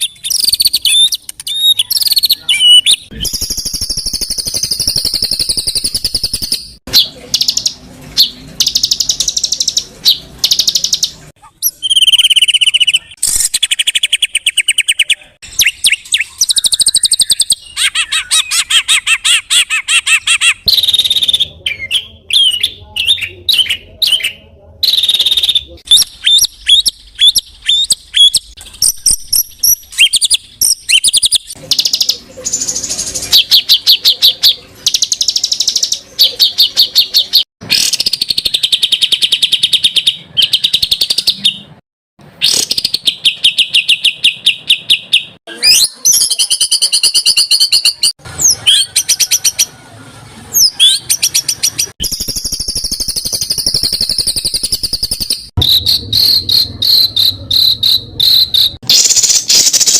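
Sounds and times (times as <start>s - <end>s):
fast rattling bird trills: 0.0s - 21.4s, 50.6s - 59.9s.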